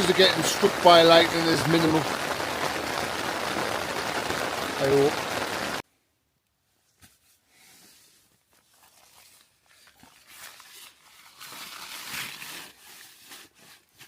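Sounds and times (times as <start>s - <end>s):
tent fabric rustling: 6.8s - 14.0s.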